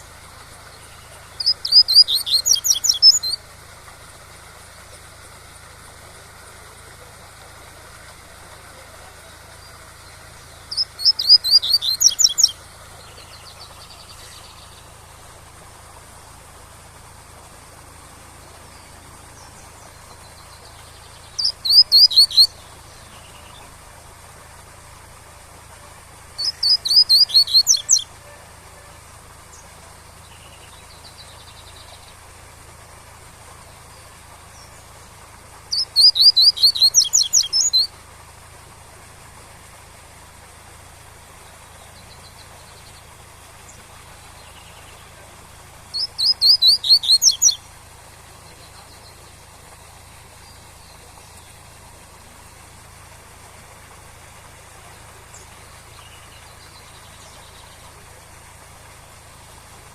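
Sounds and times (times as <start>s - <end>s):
bird singing high notes: 1.4s - 3.4s, 10.7s - 12.6s.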